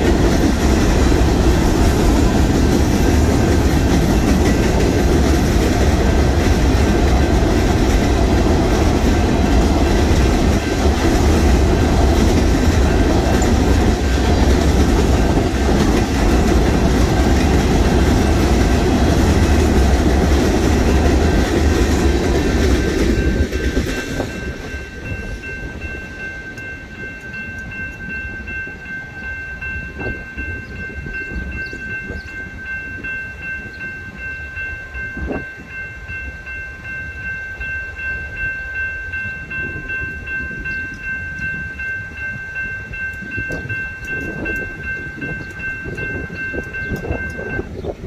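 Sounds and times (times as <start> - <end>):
crossing warning bell ringing: 0.0 - 48.0
freight train wheels rumbling: 0.0 - 48.0.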